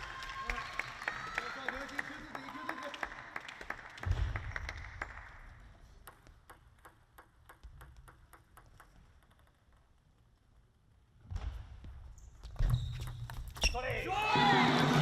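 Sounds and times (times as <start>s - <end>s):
crowd applause: 0.0s - 5.5s, 14.2s - 15.0s
table tennis ball bouncing: 6.0s - 10.0s.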